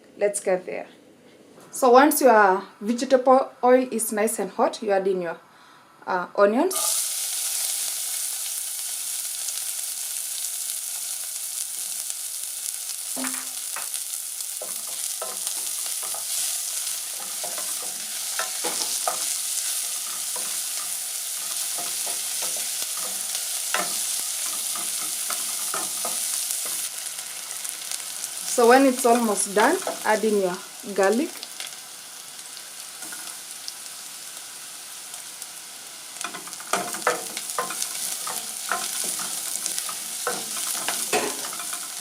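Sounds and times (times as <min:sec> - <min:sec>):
onions sizzling in oil: 0:06.7 - 0:42.0
spoon scraping a pan: 0:14.6 - 0:27.7, 0:36.2 - 0:42.0.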